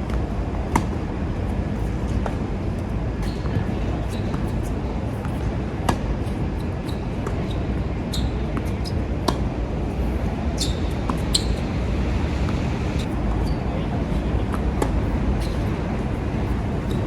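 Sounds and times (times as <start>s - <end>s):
wind rumble on microphone: 0.0s - 17.0s
tennis balls bouncing on court: 0.1s - 1.0s, 10.6s - 13.0s.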